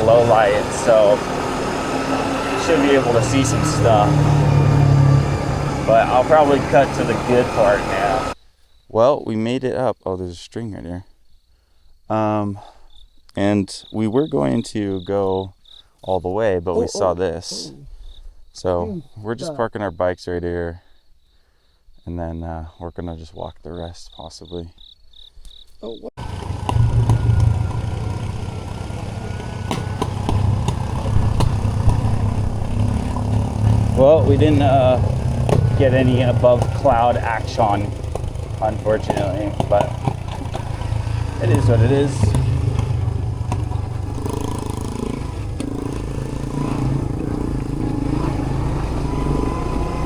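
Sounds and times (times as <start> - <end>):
motorbike engine rumbling: 0.0 - 8.4, 26.2 - 50.0.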